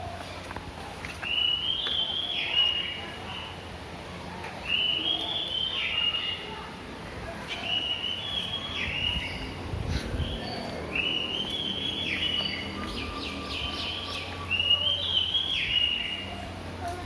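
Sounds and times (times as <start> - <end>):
songbird whistled phrase: 4.7 - 6.5.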